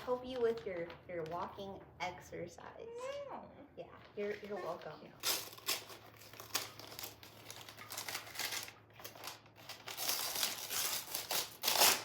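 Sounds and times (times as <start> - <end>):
wrapping paper rustling: 0.0 - 1.7, 4.2 - 12.0.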